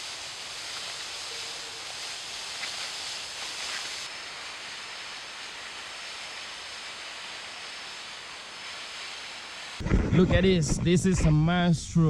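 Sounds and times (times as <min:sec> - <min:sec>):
rainforest ambient hiss: 0:00.0 - 0:12.0.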